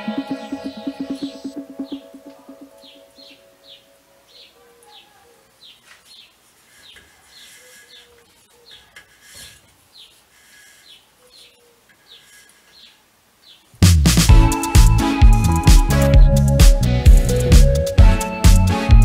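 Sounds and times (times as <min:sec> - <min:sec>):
small bird chirping: 0:00.6 - 0:13.8
faint cable rustling: 0:05.7 - 0:13.0.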